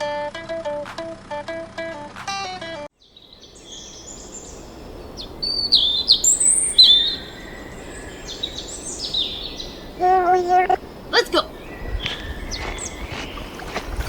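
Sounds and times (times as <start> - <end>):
faint background hiss: 0.0 - 13.8
birds chirping: 3.0 - 14.0.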